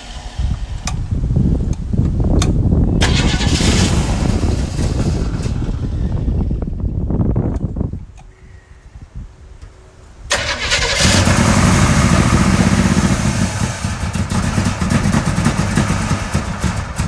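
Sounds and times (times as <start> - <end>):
car engine starting and running: 0.0 - 6.8, 10.3 - 17.0.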